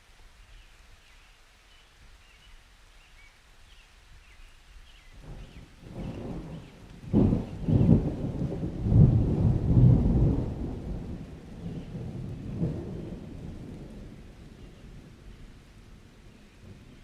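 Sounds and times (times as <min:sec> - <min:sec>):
steady rain: 0:00.0 - 0:17.0
thunder rolling: 0:05.2 - 0:15.3.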